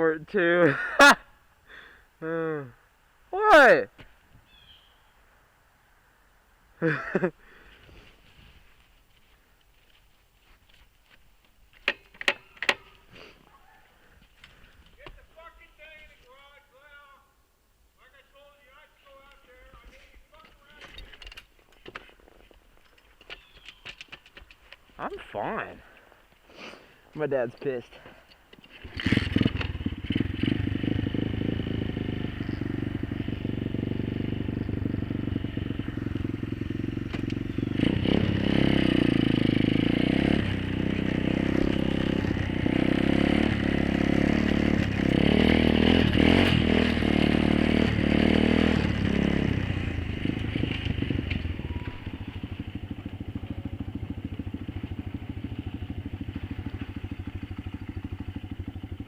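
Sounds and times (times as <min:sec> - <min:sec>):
motorbike engine running: 0:28.8 - 0:59.0.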